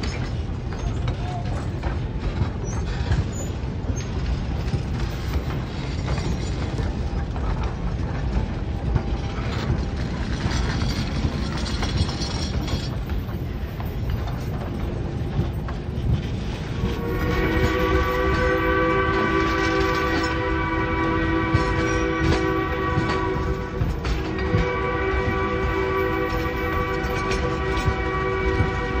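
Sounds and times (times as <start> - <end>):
train wheels rattling over rails: 0.0 - 29.0
steam locomotive whistle: 16.7 - 29.0.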